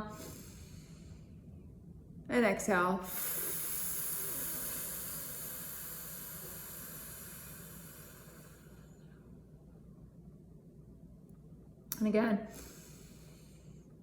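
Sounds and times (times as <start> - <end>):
woman exhaling through teeth: 3.1 - 8.8.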